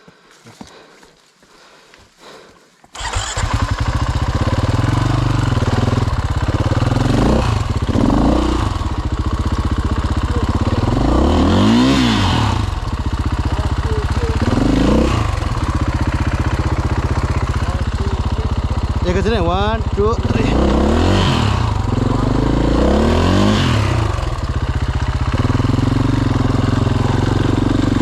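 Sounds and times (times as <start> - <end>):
dirt bike engine idling: 2.9 - 28.0
throttle blips revving: 10.0 - 24.5.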